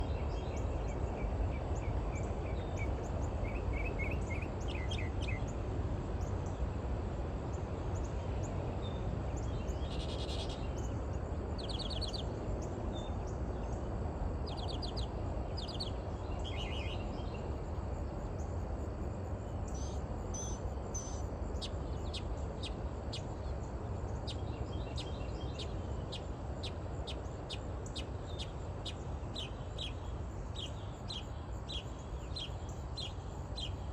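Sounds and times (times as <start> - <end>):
small birds chirping: 19.5 - 33.9.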